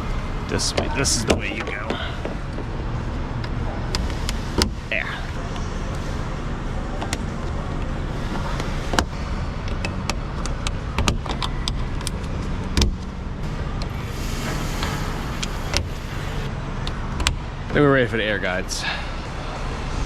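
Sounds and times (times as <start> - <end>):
steady low hum: 0.0 - 20.0
car parts clicking and knocking: 0.6 - 2.8, 7.0 - 13.2.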